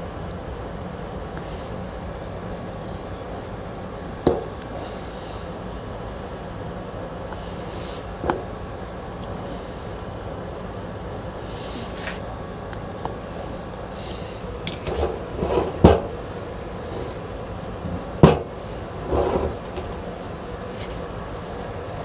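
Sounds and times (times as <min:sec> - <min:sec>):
steady background hum: 0:00.0 - 0:22.0
fan parts knocking and clattering: 0:02.8 - 0:05.0, 0:08.2 - 0:08.6, 0:12.0 - 0:21.2.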